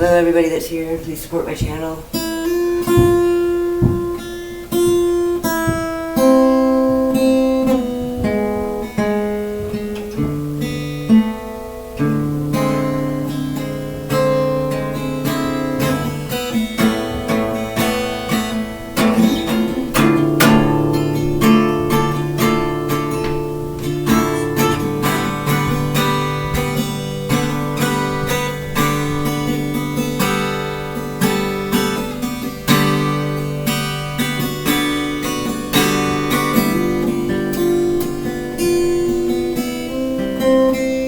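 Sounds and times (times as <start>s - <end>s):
acoustic guitar strumming: 0.0s - 41.0s.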